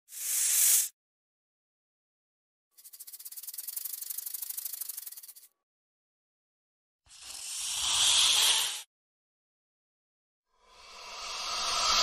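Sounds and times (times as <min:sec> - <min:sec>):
snake hissing: 0:07.1 - 0:08.9.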